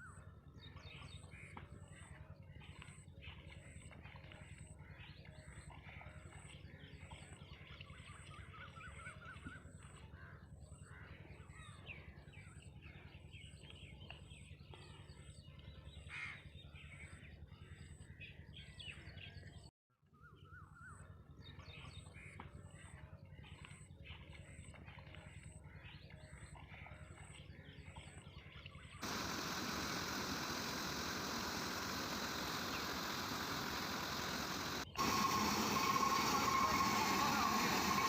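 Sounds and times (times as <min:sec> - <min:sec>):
faint high pulsing: 0:29.0 - 0:38.0
small birds chirping: 0:29.0 - 0:38.0
steady low hum: 0:29.0 - 0:38.0.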